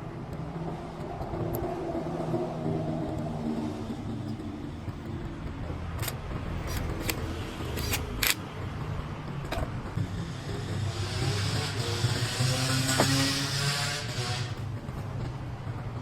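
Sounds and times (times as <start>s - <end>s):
vehicle engine rumbling: 2.6s - 16.0s
sharp clicks: 6.0s - 8.4s.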